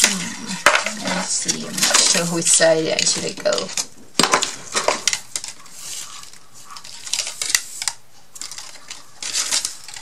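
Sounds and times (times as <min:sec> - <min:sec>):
soft rustling: 0:04.5 - 0:10.0.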